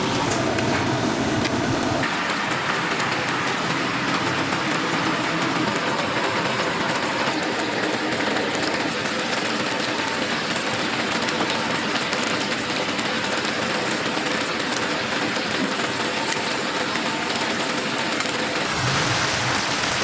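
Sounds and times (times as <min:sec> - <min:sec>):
chicken sizzling in hot oil: 0:18.6 - 0:20.0.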